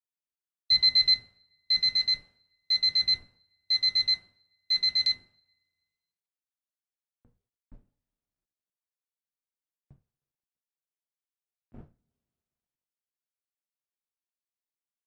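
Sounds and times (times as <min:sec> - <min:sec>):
alarm clock beeping: 0:00.7 - 0:05.3.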